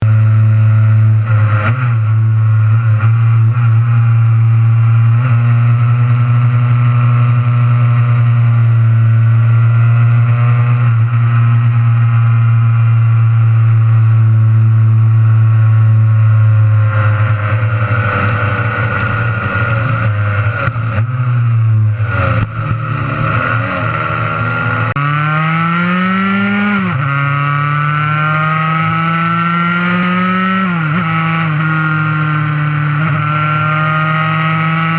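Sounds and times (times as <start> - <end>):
two-stroke engine at high revs: 0.0 - 34.9.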